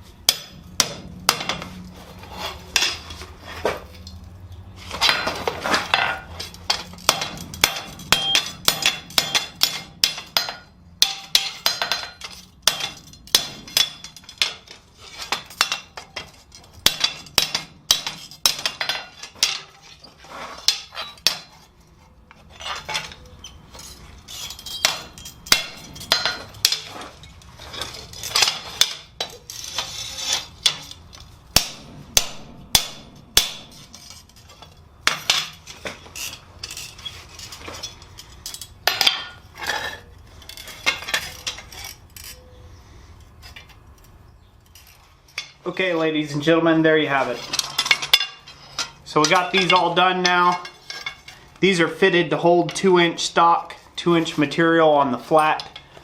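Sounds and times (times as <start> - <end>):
hammer ringing on anvil: 7.1 - 11.9.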